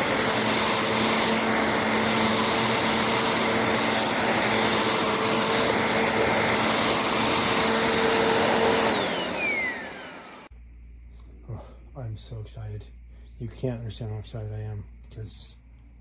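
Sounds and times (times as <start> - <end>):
vacuum cleaner motor whine: 0.0 - 10.5.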